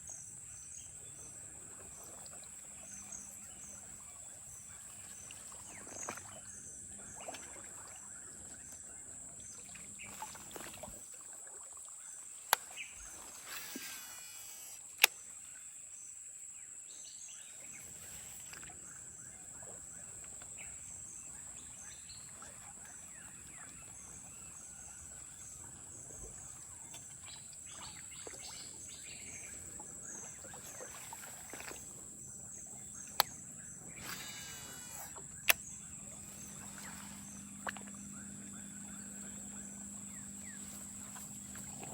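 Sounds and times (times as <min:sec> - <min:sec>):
insects shrilling: 0:13.1 - 0:15.1, 0:33.0 - 0:41.9
sharp clicks: 0:33.0 - 0:33.4, 0:34.0 - 0:35.8.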